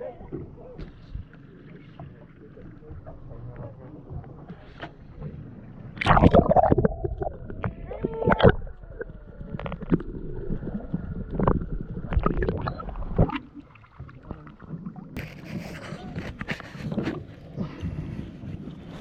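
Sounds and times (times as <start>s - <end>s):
knocks and splashes: 6.0s - 10.1s.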